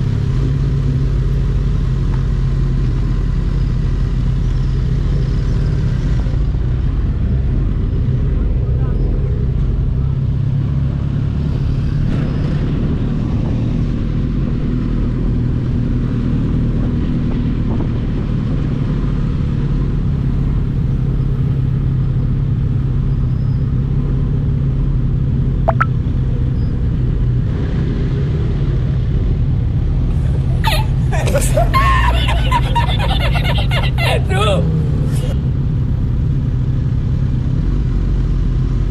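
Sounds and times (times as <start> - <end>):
sharp chirp: 25.7 - 25.9.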